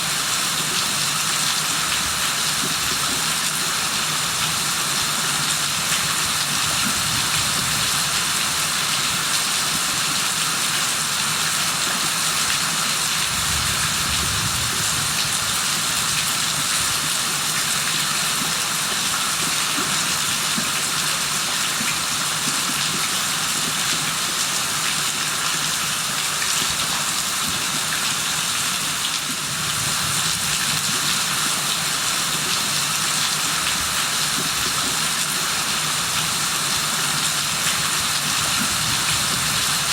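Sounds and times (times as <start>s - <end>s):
heavy rain falling: 13.0s - 17.4s, 35.4s - 39.9s.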